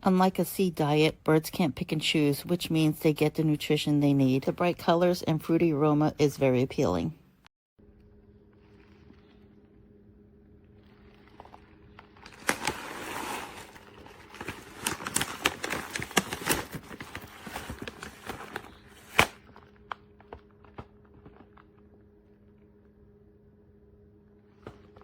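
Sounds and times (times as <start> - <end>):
plastic bag crinkling: 8.4 - 21.9
pellets clicking and rattling: 10.8 - 19.6.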